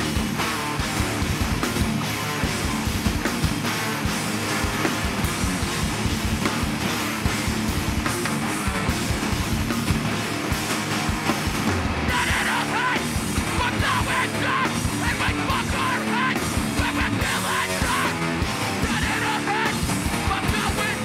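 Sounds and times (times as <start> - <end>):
heavy rock band playing: 0.0 - 21.0
person yelling vocals: 12.1 - 21.0.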